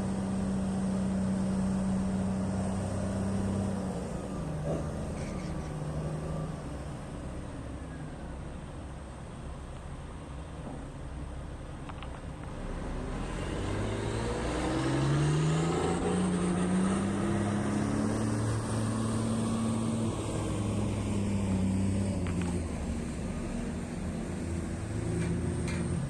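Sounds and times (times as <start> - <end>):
diesel engine revving: 0.0 - 7.0, 12.6 - 26.0.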